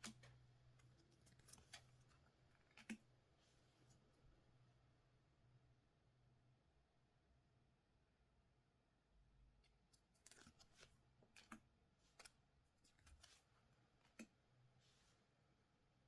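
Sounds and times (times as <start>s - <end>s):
soft rustle of cards: 0.0s - 4.1s, 9.6s - 15.4s.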